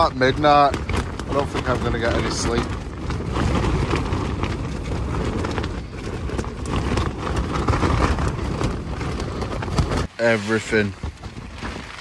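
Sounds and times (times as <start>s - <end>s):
tent fabric flapping: 0.0s - 12.0s.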